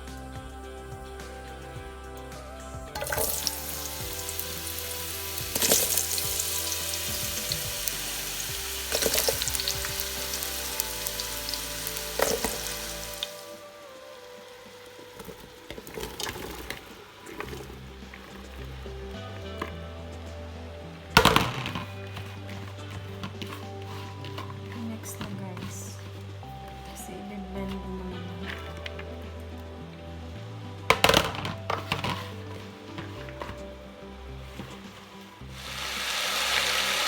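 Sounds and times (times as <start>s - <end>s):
vegetables sizzling in oil: 3.0s - 27.1s, 34.4s - 37.0s.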